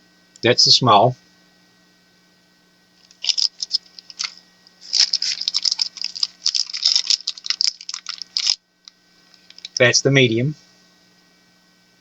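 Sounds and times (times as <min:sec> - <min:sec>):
faint mains hum: 0:00.0 - 0:12.0
packaging crinkling and clicking: 0:03.0 - 0:09.8.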